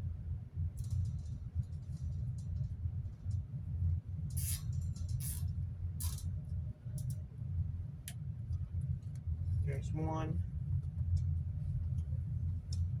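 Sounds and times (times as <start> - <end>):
zip ties ratcheting: 4.4 - 6.2.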